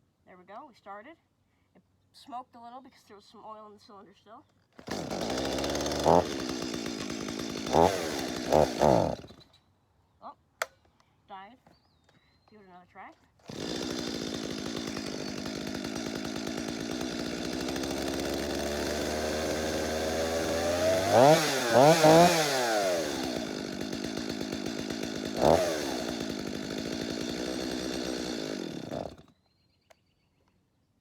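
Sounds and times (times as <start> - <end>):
chainsaw engine idling and revving: 4.8 - 9.4, 13.4 - 29.3.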